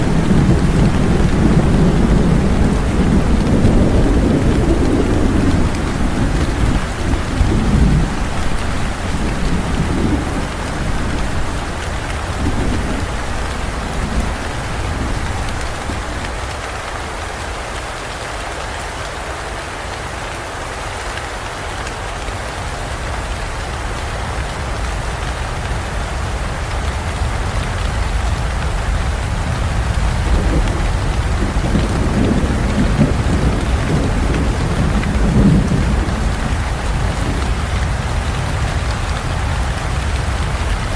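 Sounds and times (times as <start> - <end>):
deep thunder rumbling: 0.0 - 17.2, 29.4 - 40.9
heavy rain: 0.0 - 40.9.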